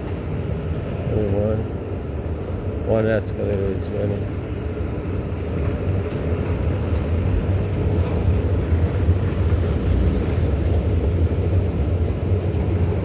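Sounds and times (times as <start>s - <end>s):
escalator rumble and hum: 0.0s - 13.0s.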